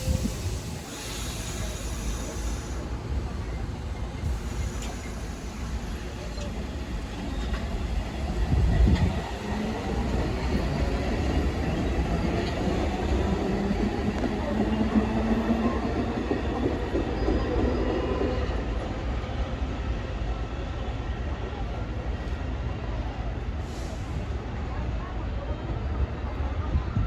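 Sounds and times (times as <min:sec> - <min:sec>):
subway train wheels rumbling: 0:00.0 - 0:27.0.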